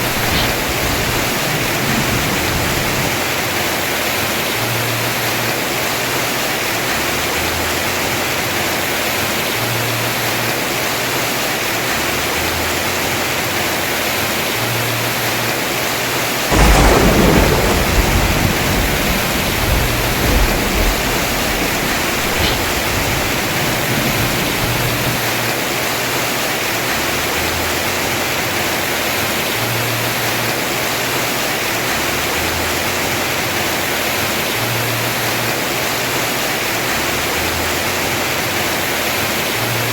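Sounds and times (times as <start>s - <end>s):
thunderclap rumbling: 0.0s - 4.6s, 16.5s - 25.8s
heavy rain on a roof: 0.0s - 39.9s.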